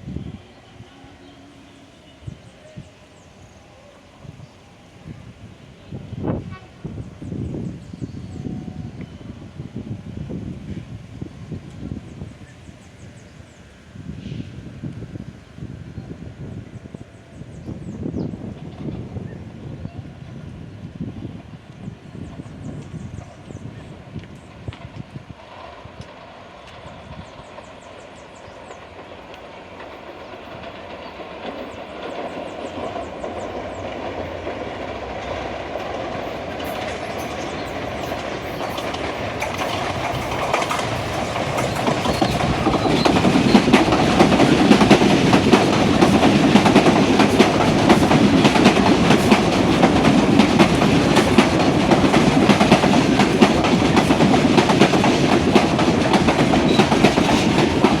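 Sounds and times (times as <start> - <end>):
electric train rumbling past: 0.0 - 58.0
wheels clacking over rails: 28.7 - 58.0.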